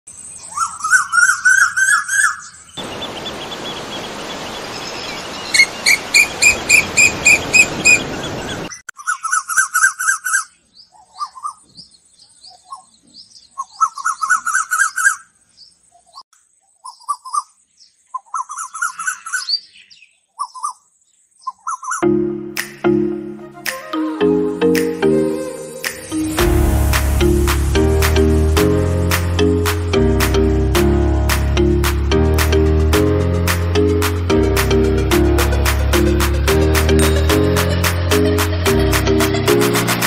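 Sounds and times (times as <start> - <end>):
birds warbling: 0.4 - 16.2
rushing hiss: 25.6 - 29.3.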